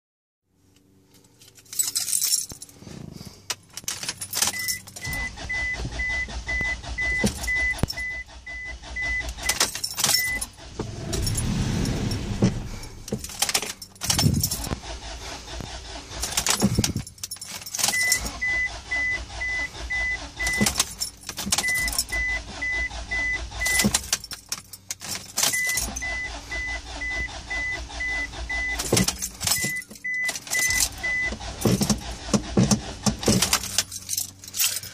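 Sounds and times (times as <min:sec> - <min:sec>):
keys jangling: 0:01.1 - 0:02.8, 0:03.4 - 0:05.3, 0:09.4 - 0:14.8, 0:16.2 - 0:18.5, 0:20.4 - 0:22.3, 0:23.6 - 0:26.1, 0:28.8 - 0:34.9
car engine cranking: 0:01.2 - 0:34.9.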